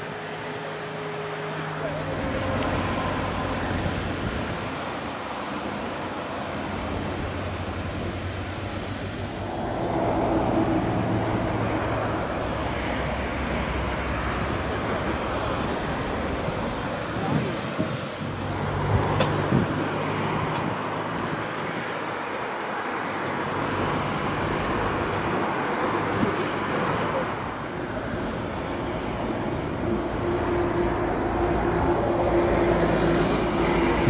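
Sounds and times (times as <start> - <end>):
engine rumble: 0.0 - 34.0
road traffic noise: 0.0 - 34.0.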